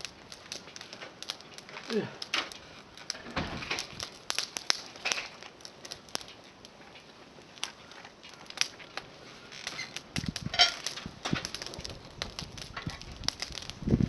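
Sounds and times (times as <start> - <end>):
campfire crackling: 0.0 - 14.0
knocks and rustling: 3.1 - 4.0.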